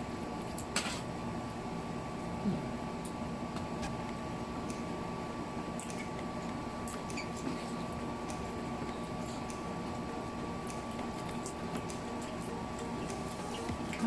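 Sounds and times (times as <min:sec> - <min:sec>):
room hum: 0:00.0 - 0:14.0
chewing clicks and smacks: 0:05.8 - 0:07.2.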